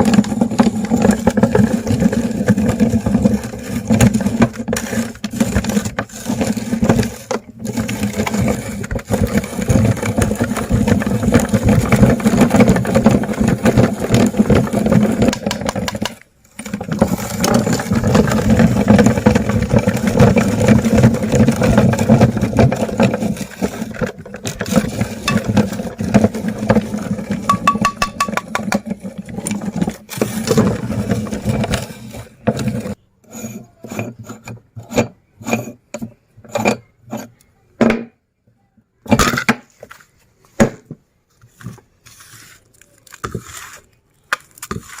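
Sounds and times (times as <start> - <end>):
meat grinder crunching candy: 0.0 - 33.0, 42.2 - 45.0
clicks and crackles: 42.6 - 45.0.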